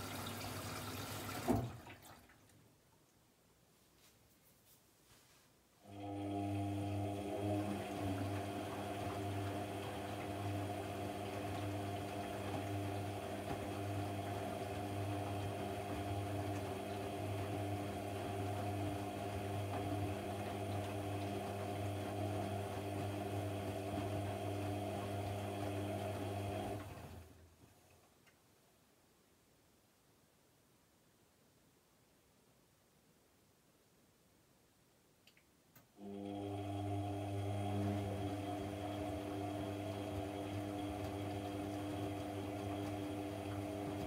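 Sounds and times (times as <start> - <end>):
washing machine humming: 0.0 - 2.5, 5.8 - 27.5, 36.0 - 44.0.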